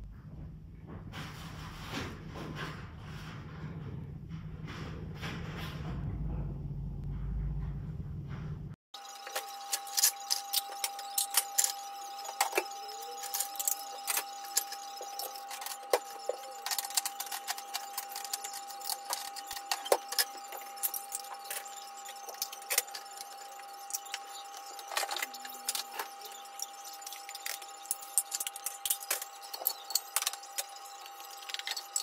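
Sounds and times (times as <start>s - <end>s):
faint steady whine: 9.0s - 32.0s
household items clattering: 9.0s - 32.0s.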